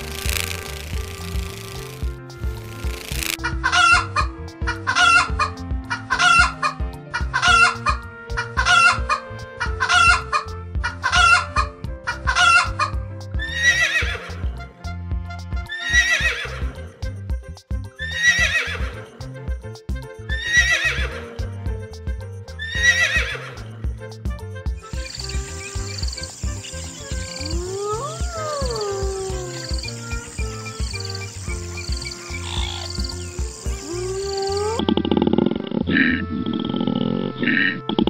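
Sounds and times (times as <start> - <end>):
background music: 0.0 - 38.0
animal calls: 24.9 - 35.3.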